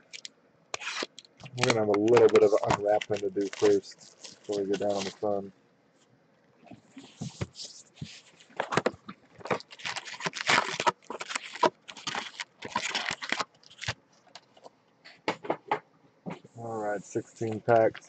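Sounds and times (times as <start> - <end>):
cellophane tearing and crinkling: 0.0 - 5.3, 7.0 - 14.7.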